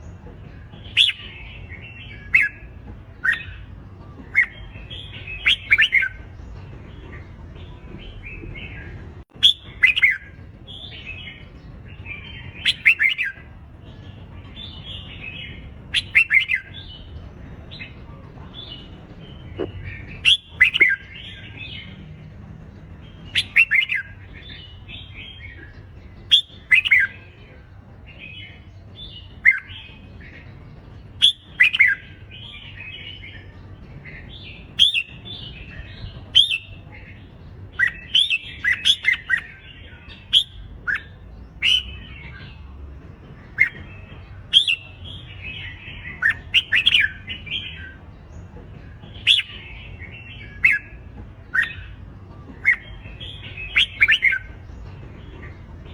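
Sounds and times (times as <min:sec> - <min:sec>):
bulbuls whistled song: 0:00.0 - 0:55.9.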